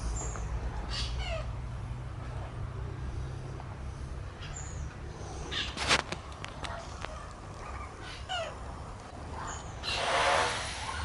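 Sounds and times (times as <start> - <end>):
birds chirping: 0.0 - 1.6, 2.6 - 10.3
loud harsh bird call: 9.4 - 11.0.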